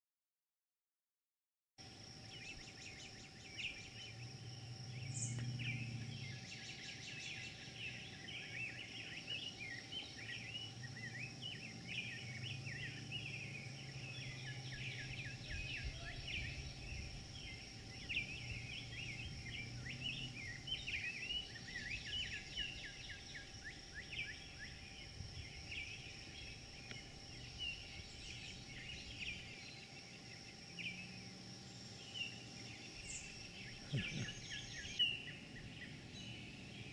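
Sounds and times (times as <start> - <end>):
small birds chirping: 1.8 - 36.9.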